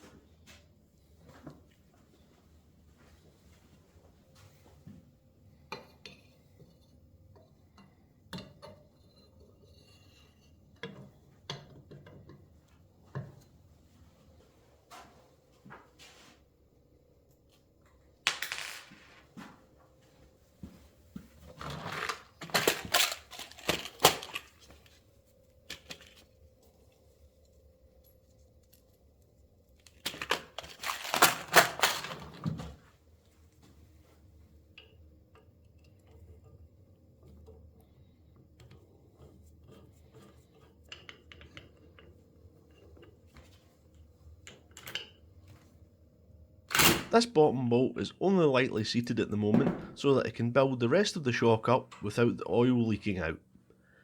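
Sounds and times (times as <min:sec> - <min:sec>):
metal parts and tools clinking: 0:21.6 - 0:24.8, 0:29.9 - 0:32.4.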